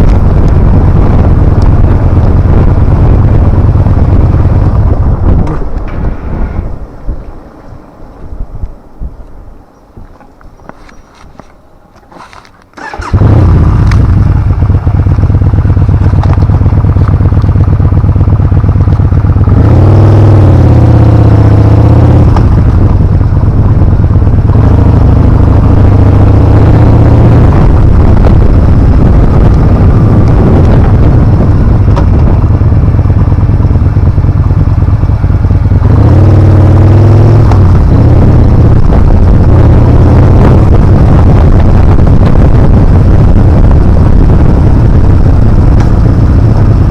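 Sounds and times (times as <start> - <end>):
motorcycle engine revving: 0.0 - 6.8, 12.1 - 46.9.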